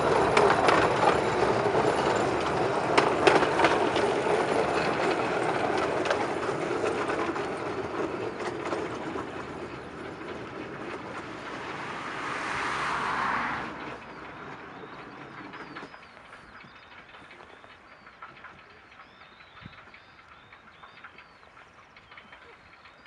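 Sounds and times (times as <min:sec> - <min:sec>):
miniature train wheels clicking: 0:00.0 - 0:23.0
birds chirping faintly: 0:12.6 - 0:23.0.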